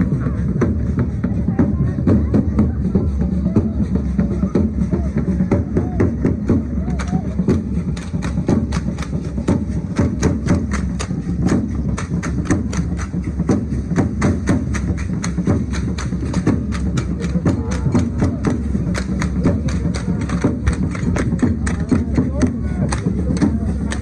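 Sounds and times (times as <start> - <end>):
sharp wooden clacks: 6.9 - 24.0.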